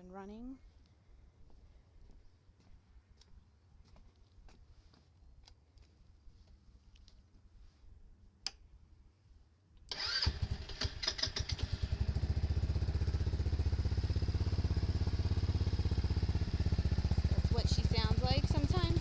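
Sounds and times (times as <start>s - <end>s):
click: 8.4s - 8.6s
engine cranking and idling: 9.9s - 19.0s.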